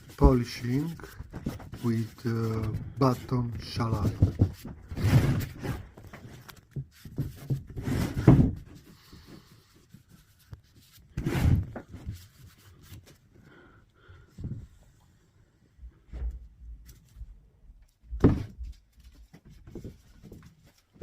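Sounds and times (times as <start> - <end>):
rubbing on wooden chair: 0.0 - 5.7.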